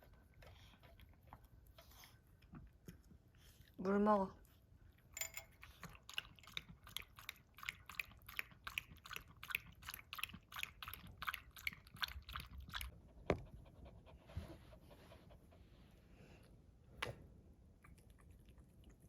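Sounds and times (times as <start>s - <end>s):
dog lapping water: 5.5s - 13.6s.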